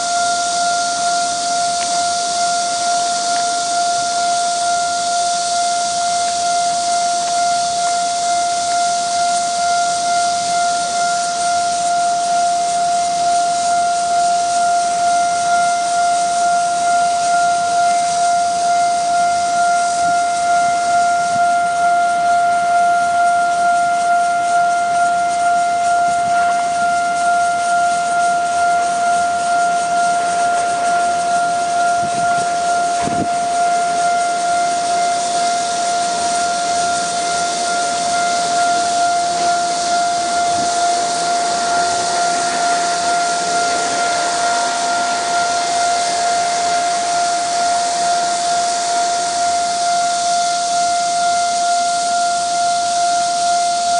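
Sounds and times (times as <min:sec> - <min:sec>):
level crossing warning alarm: 0:00.0 - 0:53.9
rushing noise: 0:28.3 - 0:51.6.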